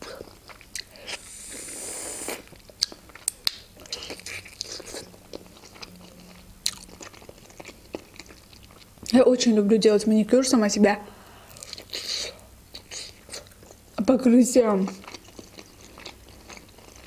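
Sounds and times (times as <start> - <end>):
soft high hiss: 0.0 - 2.8
biting and chewing food: 2.4 - 9.2, 14.9 - 17.0.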